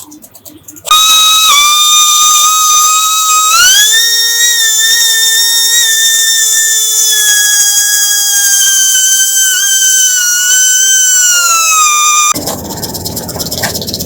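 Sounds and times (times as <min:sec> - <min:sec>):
power tool motor whining: 0:00.9 - 0:12.4.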